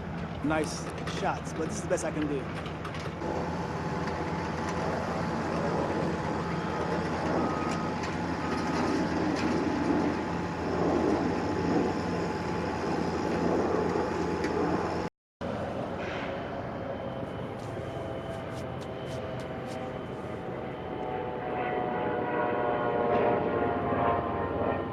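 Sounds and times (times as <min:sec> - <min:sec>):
site and traffic noise: 0:00.0 - 0:24.1
machine engine running: 0:00.6 - 0:14.8.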